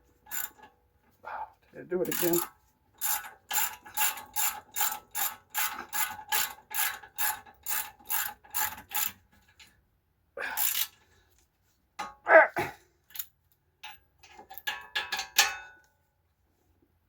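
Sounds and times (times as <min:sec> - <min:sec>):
ratchet wrench clicking: 0:00.3 - 0:00.6, 0:02.1 - 0:09.1, 0:10.6 - 0:10.9.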